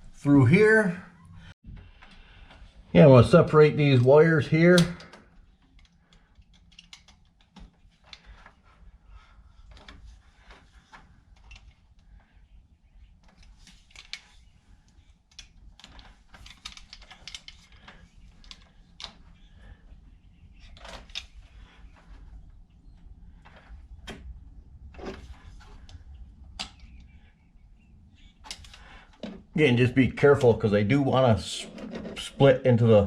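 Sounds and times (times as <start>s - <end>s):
wire clicks and scratches: 3.7s - 9.0s, 9.6s - 27.3s.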